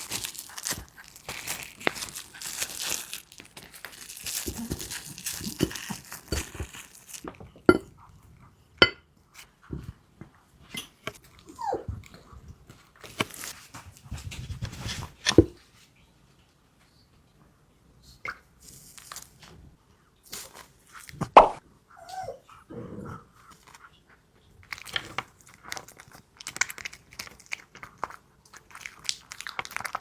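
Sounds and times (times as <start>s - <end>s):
dog crunching food: 0.0s - 7.4s, 24.6s - 30.0s
dog whining: 11.5s - 12.0s, 21.9s - 22.6s.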